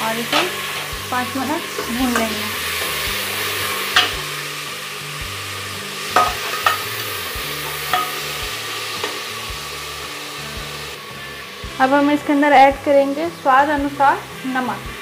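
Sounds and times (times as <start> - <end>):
vegetables sizzling in hot oil: 0.0 - 15.0
spoon clinking against pot: 3.9 - 4.2, 6.2 - 6.9, 7.9 - 8.2.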